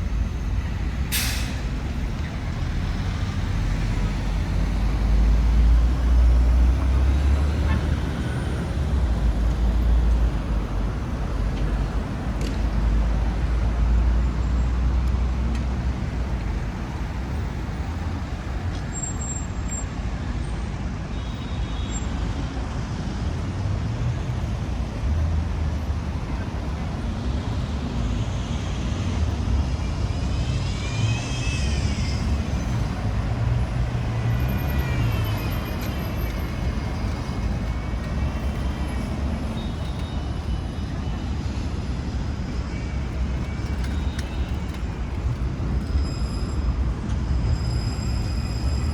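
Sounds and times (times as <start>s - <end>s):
traffic passing: 0.0s - 20.4s, 22.0s - 48.9s
high squeal: 29.6s - 41.6s, 42.6s - 48.9s.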